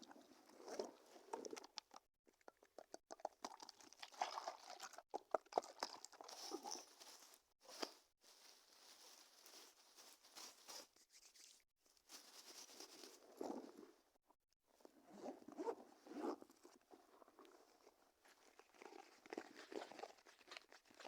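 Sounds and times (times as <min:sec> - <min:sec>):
crinkly rustling and crunching: 0:06.2 - 0:11.0, 0:11.9 - 0:13.8.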